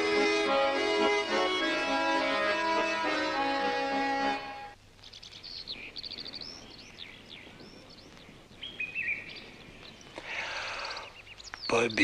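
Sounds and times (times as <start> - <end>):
accordion note: 0.0 - 4.8
birds chirping and trilling: 5.0 - 12.0.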